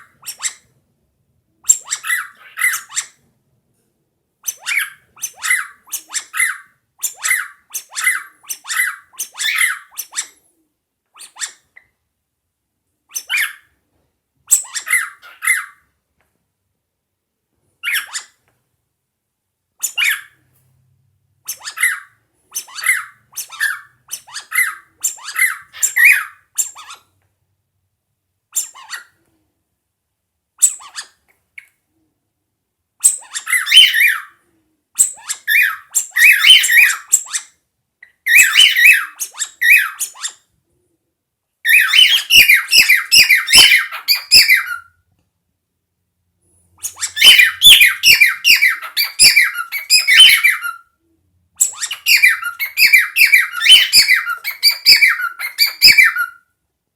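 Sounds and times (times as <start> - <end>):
cockatiel chirping and warbling: 0.0 - 0.7, 1.6 - 3.3, 4.4 - 10.4, 11.2 - 11.9, 13.1 - 13.7, 14.5 - 15.9, 17.8 - 18.4, 19.8 - 20.4, 21.4 - 27.1, 28.5 - 29.2, 30.6 - 31.7, 33.0 - 34.4, 35.0 - 40.5, 41.7 - 44.9, 46.8 - 50.9, 51.6 - 56.4.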